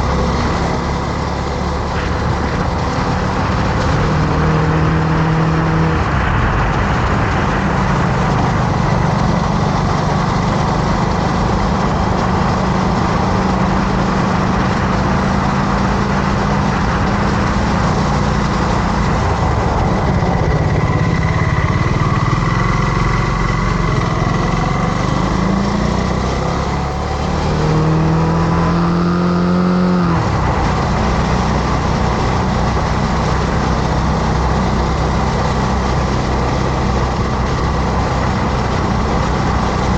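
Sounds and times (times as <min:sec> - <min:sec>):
motorcycle engine running: 0:00.0 - 0:39.9
wind and road rush: 0:00.0 - 0:39.9.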